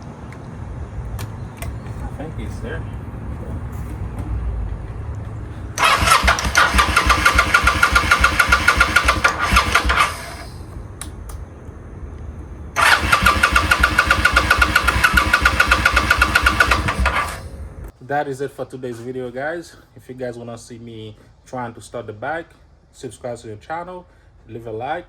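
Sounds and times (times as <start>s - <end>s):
electric starter cranking engine: 5.8s - 10.7s, 12.8s - 17.6s.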